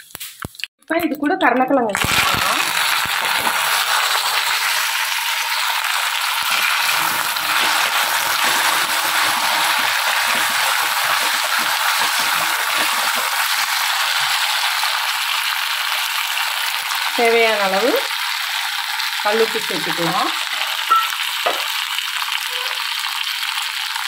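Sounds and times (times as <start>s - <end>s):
food frying in hot oil: 2.0s - 24.0s.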